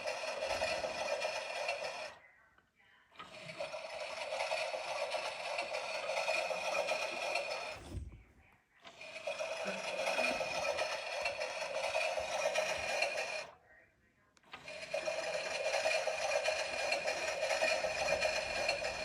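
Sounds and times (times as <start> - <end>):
washing machine whirring: 0.0 - 2.2, 3.2 - 13.6, 14.5 - 19.0.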